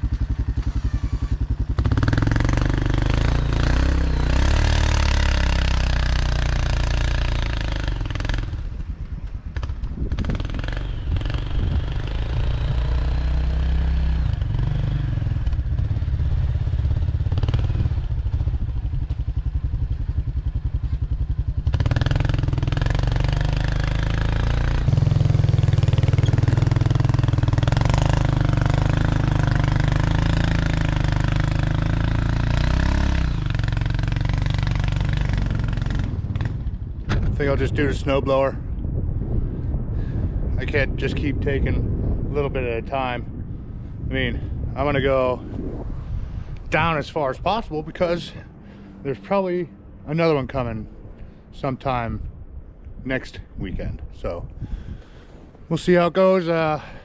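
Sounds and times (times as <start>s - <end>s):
atv engine running: 0.0s - 42.1s.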